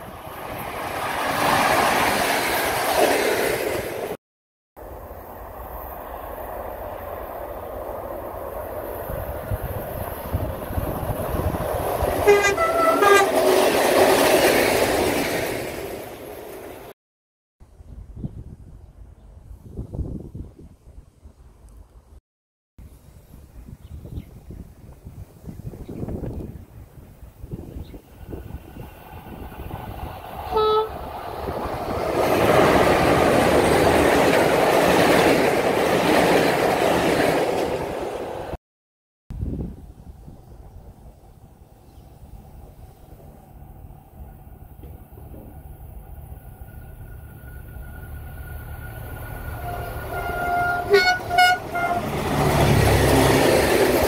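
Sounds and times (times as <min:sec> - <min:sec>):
two-tone train horn: 0:12.2 - 0:13.4, 0:30.5 - 0:31.0, 0:49.5 - 0:52.3
train wheels on rails: 0:28.0 - 0:38.6, 0:42.2 - 0:54.0.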